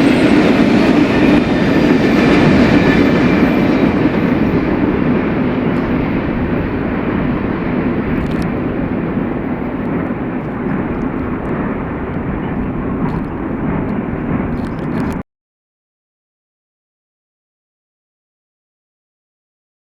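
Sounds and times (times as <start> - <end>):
freight train rumbling past: 0.0 - 15.2.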